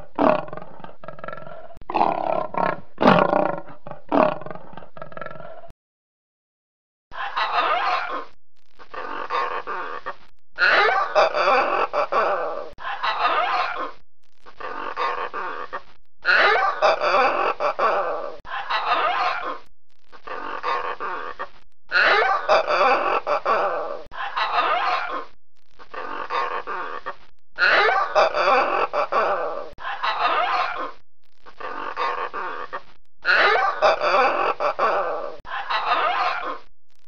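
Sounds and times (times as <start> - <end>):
macaws squawking: 35.5 - 36.6.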